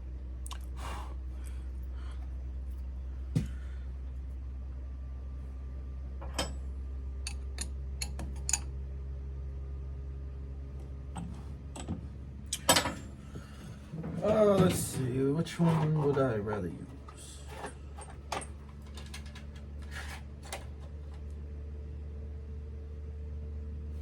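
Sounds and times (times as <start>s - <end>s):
steady low hum: 0.0s - 24.0s
metallic tool clicks and clinks: 7.3s - 8.7s.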